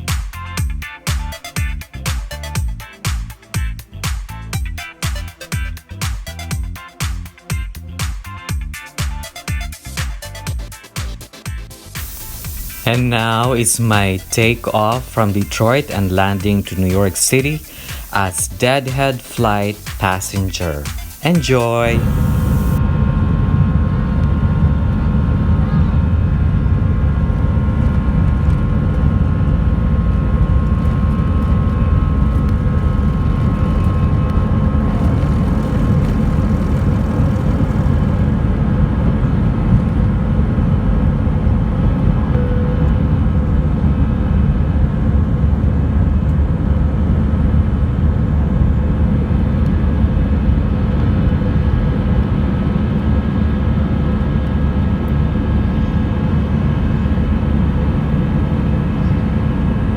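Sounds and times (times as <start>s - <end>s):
jet engines rumbling in cabin: 12.0s - 59.9s
faint whining tones: 30.4s - 38.8s.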